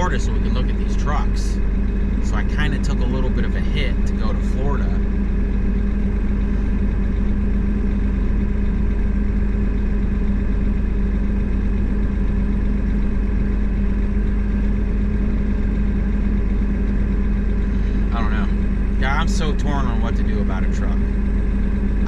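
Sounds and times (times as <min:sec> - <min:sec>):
truck engine and road drone: 0:00.0 - 0:22.0.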